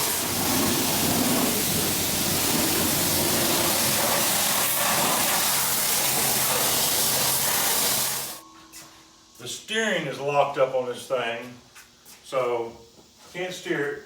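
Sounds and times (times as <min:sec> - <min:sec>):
pressure wand spraying water: 0:00.0 - 0:08.4.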